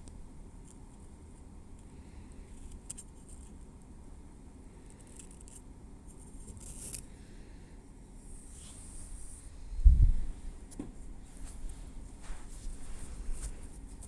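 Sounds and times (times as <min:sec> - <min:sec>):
steady low hum: 0:00.0 - 0:14.0
tweezers scratching through hair: 0:05.2 - 0:07.1.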